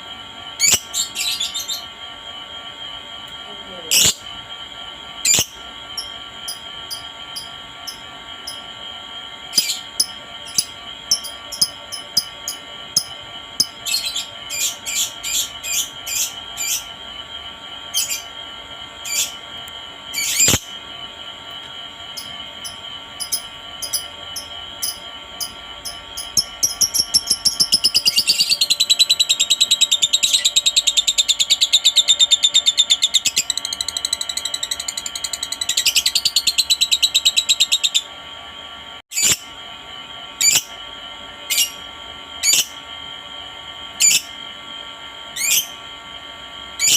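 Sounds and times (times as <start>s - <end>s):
bird chirping and trilling: 0.6s - 1.9s, 5.2s - 8.6s, 9.5s - 16.9s, 19.0s - 19.4s, 20.1s - 20.8s, 22.2s - 38.0s.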